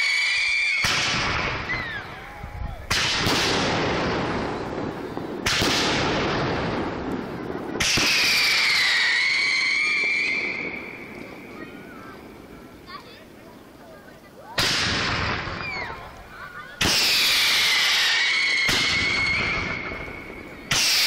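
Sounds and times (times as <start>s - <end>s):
firework booms with echo: 0.8s - 13.0s, 14.5s - 21.0s.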